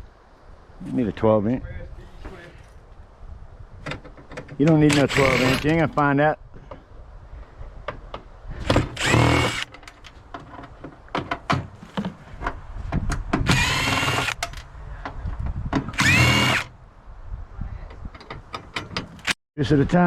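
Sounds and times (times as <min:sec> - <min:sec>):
power tool whining: 0:04.9 - 0:05.7, 0:08.7 - 0:09.7, 0:13.5 - 0:14.6, 0:16.0 - 0:16.7
metal clicks and knocks: 0:18.1 - 0:19.3.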